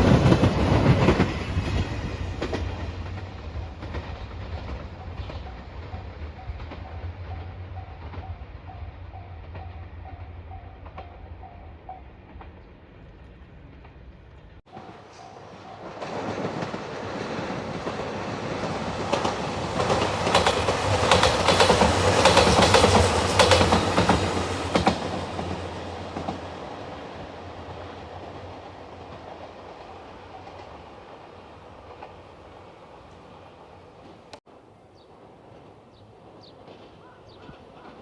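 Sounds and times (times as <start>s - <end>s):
train wheels clacking over rail joints: 14.7s - 26.6s, 35.5s - 38.0s.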